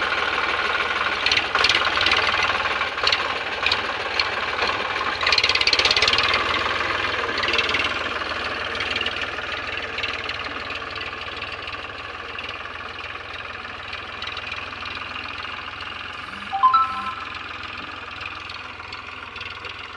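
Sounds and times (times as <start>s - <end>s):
tractor diesel engine knocking: 0.0s - 16.1s, 17.6s - 19.9s
brief higher tone: 16.2s - 17.4s.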